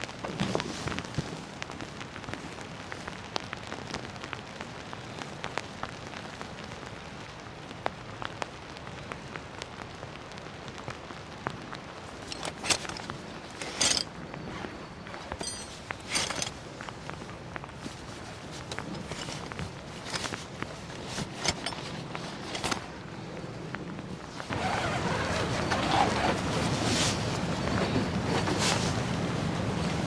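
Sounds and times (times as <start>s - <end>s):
rain drops pattering: 0.0s - 30.0s
short rustling bursts: 12.0s - 30.0s.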